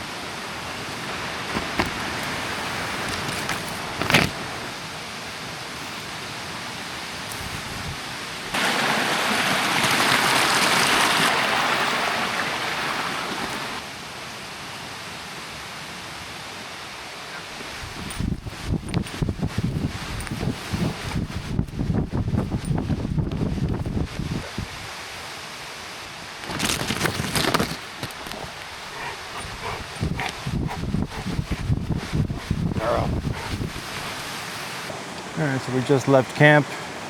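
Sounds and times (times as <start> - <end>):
rushing water: 0.0 - 37.0.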